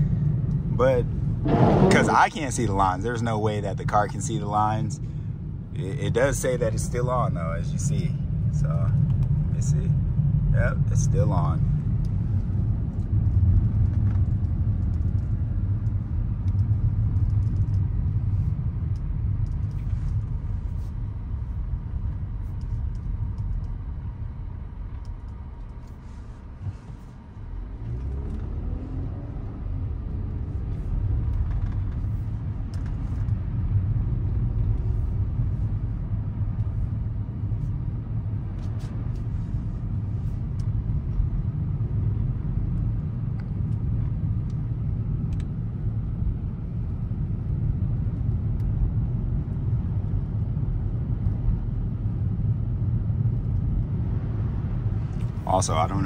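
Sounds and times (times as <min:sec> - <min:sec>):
car engine accelerating: 0:00.0 - 0:04.7, 0:25.0 - 0:43.8
road and tyre rumble: 0:00.0 - 0:56.0.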